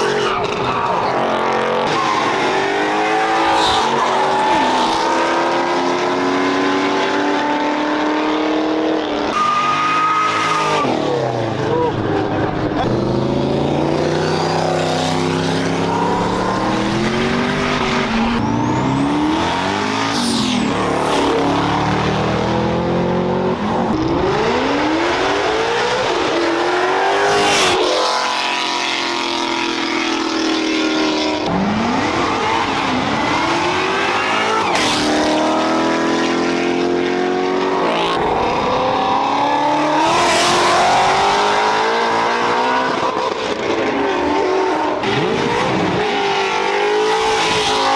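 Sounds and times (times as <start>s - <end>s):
car engine revving hard: 12.6s - 43.2s.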